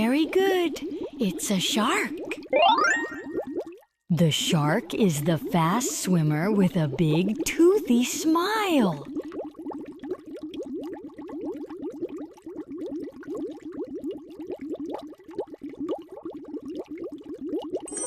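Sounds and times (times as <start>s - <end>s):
underwater bubbles: 0.0s - 17.9s.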